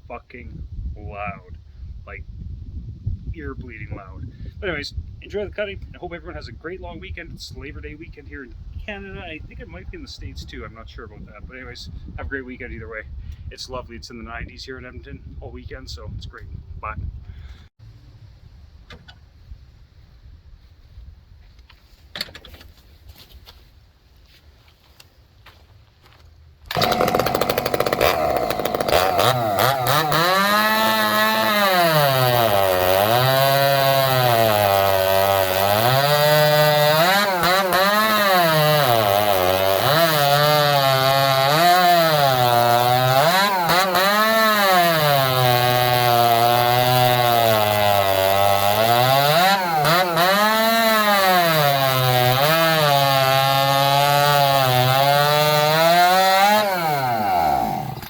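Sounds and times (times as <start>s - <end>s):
chainsaw engine revving: 26.7s - 58.0s.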